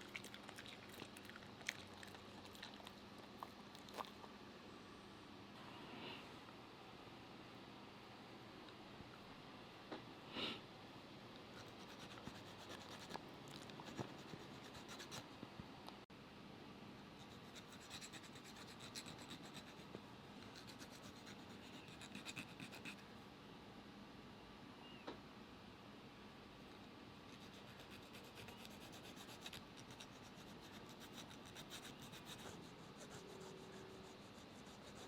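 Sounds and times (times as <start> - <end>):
nail file rasping on nails: 11.6 - 15.2, 17.2 - 23.0, 27.3 - 35.0.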